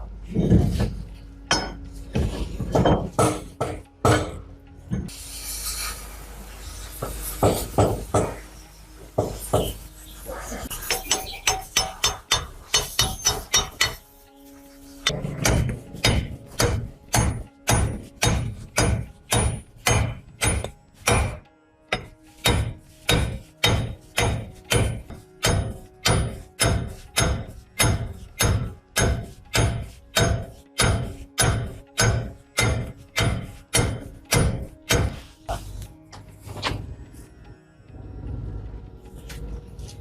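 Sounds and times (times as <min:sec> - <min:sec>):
hammer blows on steel: 0:15.5 - 0:35.2.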